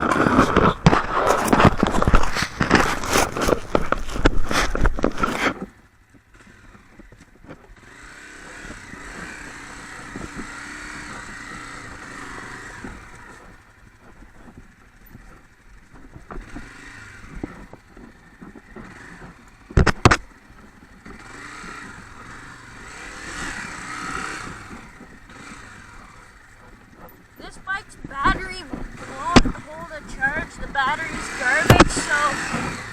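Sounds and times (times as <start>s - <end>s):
distant motorcycle engine: 0.0s - 32.9s.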